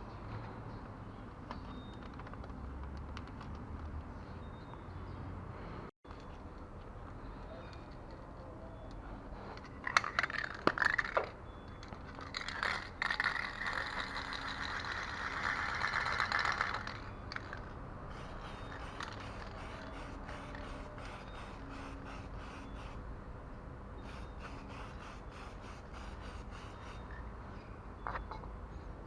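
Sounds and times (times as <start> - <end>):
aerosol can rattling: 12.2 - 21.2
spray paint hissing: 18.1 - 23.0, 24.0 - 27.2.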